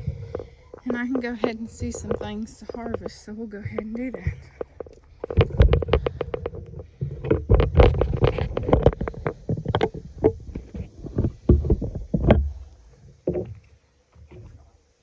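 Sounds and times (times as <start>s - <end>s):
heavy low thumps: 0.0s - 4.6s
plants rustling: 0.0s - 12.6s.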